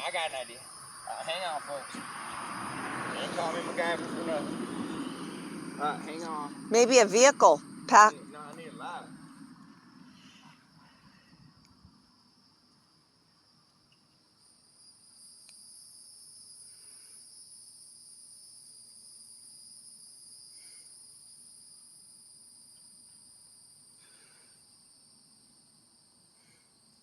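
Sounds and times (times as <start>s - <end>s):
insects shrilling: 0.0s - 4.0s.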